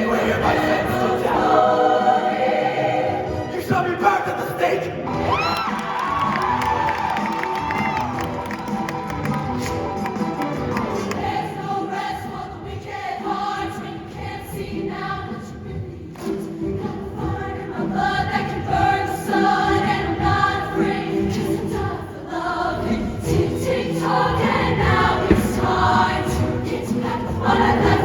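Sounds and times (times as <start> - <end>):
choir singing held chords: 0.0 - 5.3, 9.9 - 28.0
live band playing: 8.1 - 11.2.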